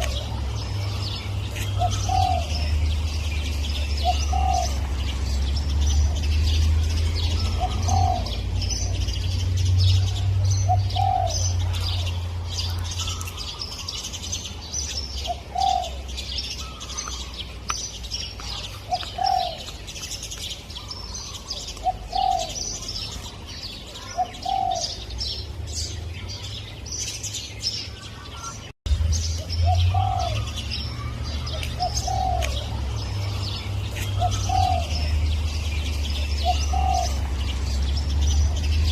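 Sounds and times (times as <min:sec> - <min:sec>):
dove cooing: 0:00.0 - 0:05.3, 0:07.2 - 0:09.1, 0:10.0 - 0:14.0, 0:15.2 - 0:17.3, 0:18.5 - 0:19.8, 0:20.8 - 0:22.8, 0:23.9 - 0:25.0, 0:29.6 - 0:35.3, 0:36.1 - 0:37.5
small birds chirping: 0:00.0 - 0:38.9.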